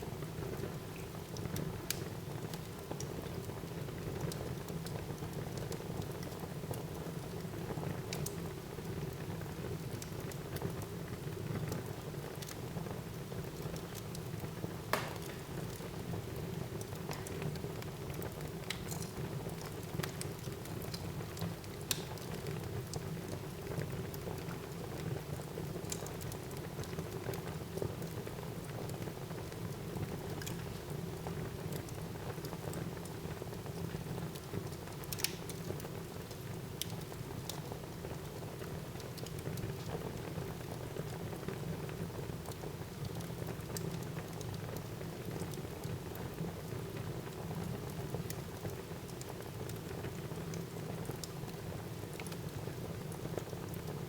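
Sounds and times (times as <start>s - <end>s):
fire crackling and popping: 0.2s - 54.0s.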